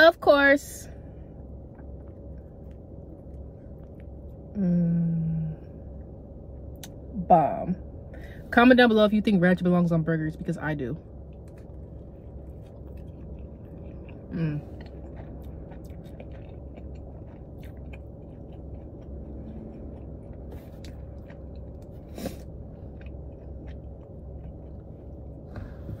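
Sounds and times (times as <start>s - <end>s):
steady low hum: 0.0s - 26.0s
short hummed sound: 0.7s - 26.0s
chewing with wet mouth smacks: 1.5s - 4.5s, 11.3s - 25.6s.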